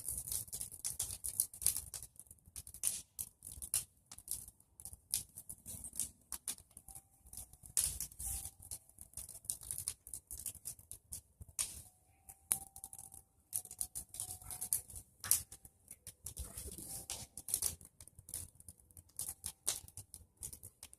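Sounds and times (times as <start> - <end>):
bonfire crackling and popping: 0.0 - 20.9.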